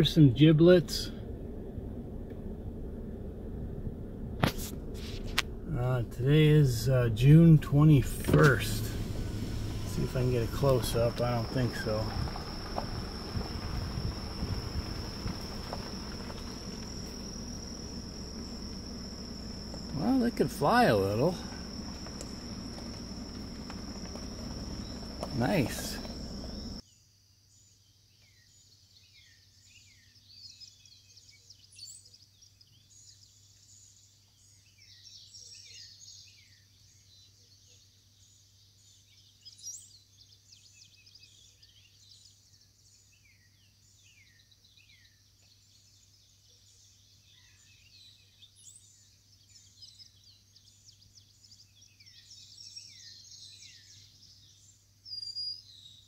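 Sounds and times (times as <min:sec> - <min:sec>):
insects buzzing: 0:04.4 - 0:26.8
birds chirping: 0:04.9 - 0:26.8.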